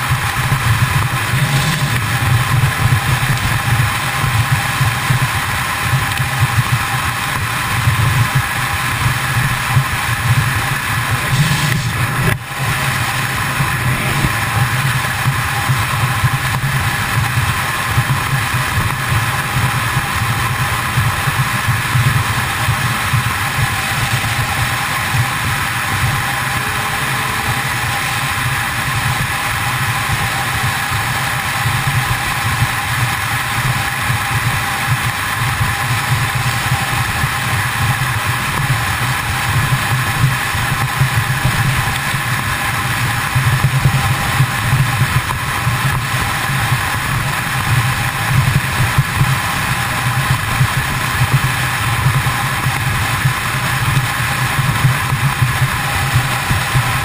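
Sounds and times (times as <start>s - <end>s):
motorcycle engine cruising: 0.0s - 57.0s
wind rushing over microphone: 9.9s - 31.7s.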